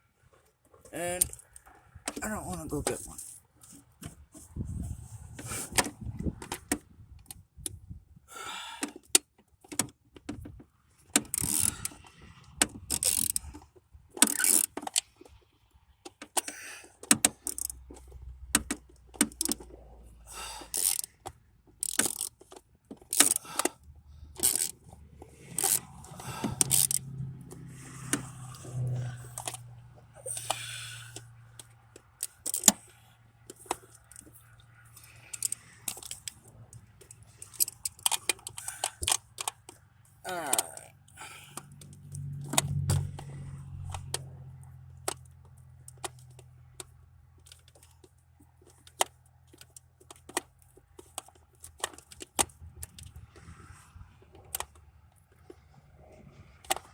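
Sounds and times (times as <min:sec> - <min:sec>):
hand tool clicking against metal: 0:21.8 - 0:23.8, 0:24.4 - 0:24.8, 0:25.4 - 0:27.0, 0:30.3 - 0:34.3.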